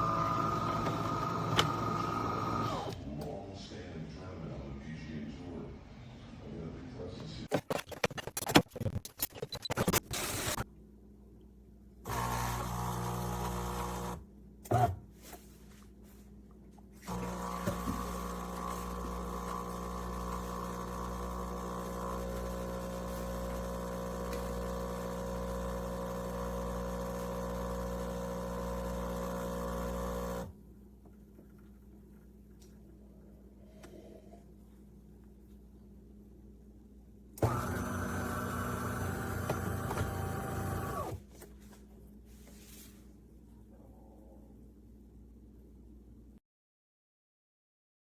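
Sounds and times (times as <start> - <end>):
small electric motor humming: 17.1 - 30.5.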